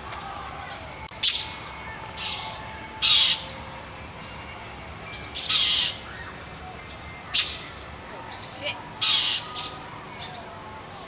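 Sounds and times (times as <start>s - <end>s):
jays harsh alarm calls: 2.2s - 3.5s, 5.3s - 6.4s, 7.3s - 10.4s.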